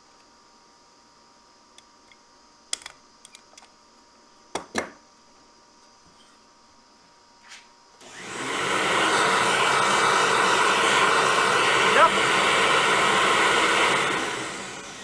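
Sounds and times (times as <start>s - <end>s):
miter saw motor spinning: 8.0s - 15.0s.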